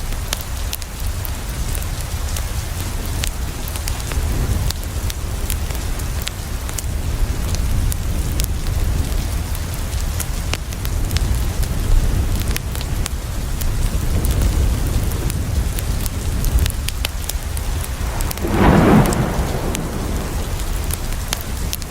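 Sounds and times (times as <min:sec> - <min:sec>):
wood fire crackling: 0:17.4 - 0:21.8
low rumble: 0:17.4 - 0:21.9.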